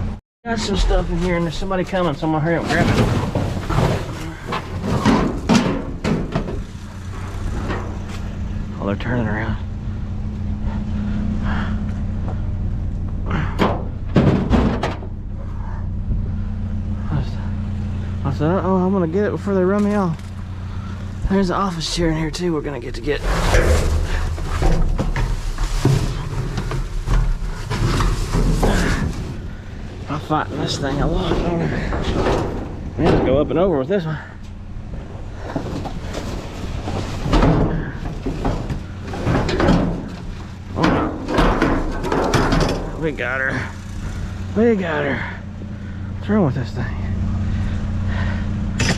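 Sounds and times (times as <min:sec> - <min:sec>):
vehicle engine idling: 0:00.0 - 0:48.9
chair clanking against metal dumpster: 0:01.9 - 0:08.2, 0:13.6 - 0:15.2, 0:23.2 - 0:33.6, 0:35.4 - 0:44.3
sharp knocks and bangs: 0:02.5 - 0:08.4, 0:13.2 - 0:15.2, 0:23.2 - 0:33.7, 0:36.8 - 0:44.4.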